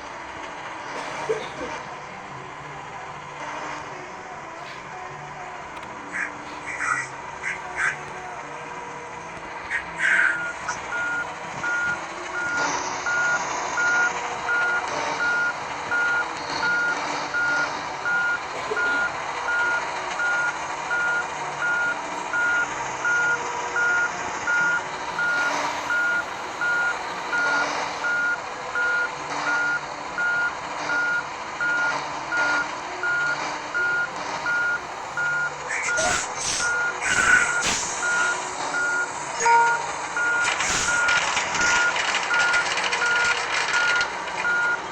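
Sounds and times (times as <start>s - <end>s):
diesel engine running: 0.0s - 44.9s
reversing alarm beeping: 9.8s - 44.9s
sharp clatters: 40.4s - 44.8s.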